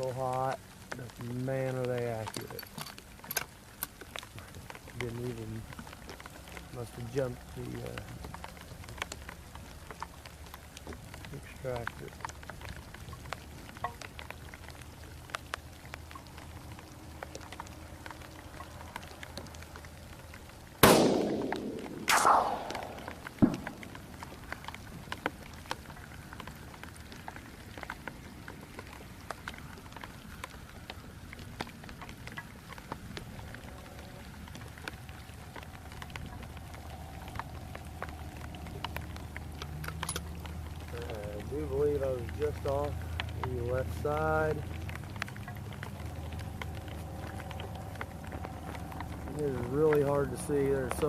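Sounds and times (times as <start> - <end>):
heavy rain pattering: 0.0 - 51.0
loud rifle shot: 20.8 - 24.0.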